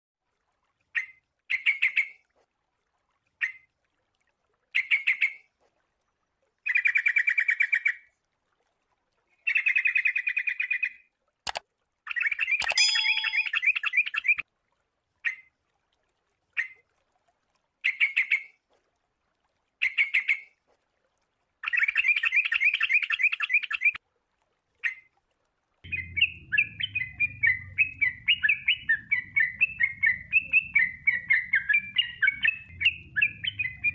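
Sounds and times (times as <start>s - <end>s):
bulbul rapid chattering calls: 25.9s - 33.9s
low hum: 25.9s - 33.9s.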